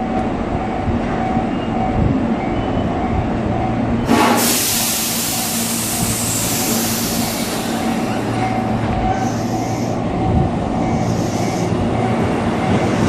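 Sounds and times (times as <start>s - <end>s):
electric train rumbling: 0.0s - 13.0s
loud hiss of air: 4.1s - 8.3s.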